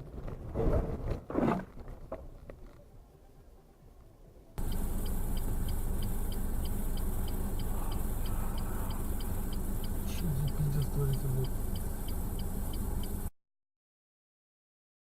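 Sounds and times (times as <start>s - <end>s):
car road and engine rumble: 4.6s - 13.3s
light ticking: 4.6s - 13.3s.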